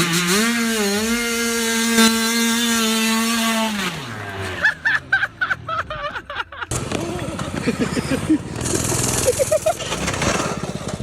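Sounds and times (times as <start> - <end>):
small motorcycle engine revving: 0.0 - 5.2, 6.7 - 11.0.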